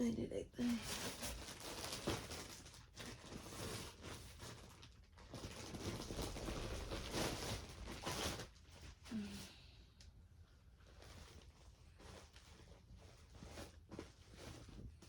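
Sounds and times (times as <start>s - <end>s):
plastic packaging crinkling: 0.8s - 9.0s
clothing rustling: 5.3s - 9.4s, 10.4s - 15.0s.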